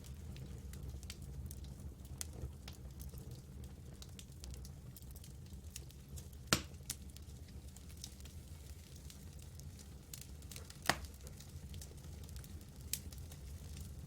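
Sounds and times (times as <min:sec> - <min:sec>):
campfire crackling: 0:00.0 - 0:14.0
loud pops of burning wood: 0:03.9 - 0:14.0.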